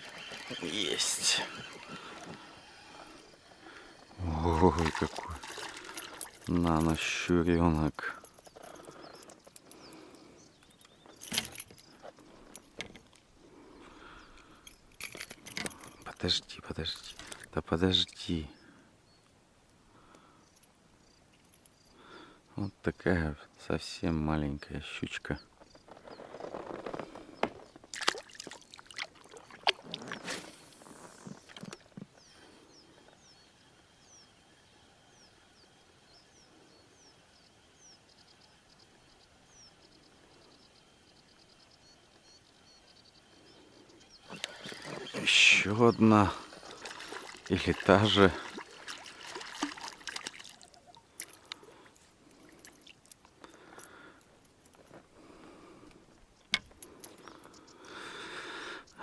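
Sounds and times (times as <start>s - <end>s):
bird chirps: 31.3s - 48.6s.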